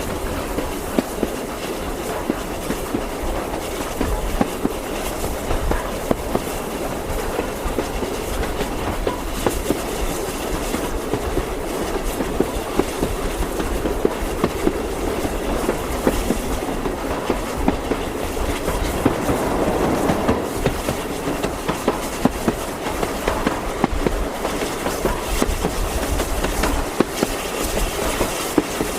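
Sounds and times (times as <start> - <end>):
train rumbling: 0.0 - 28.9
wheels clicking over rails: 0.0 - 28.9.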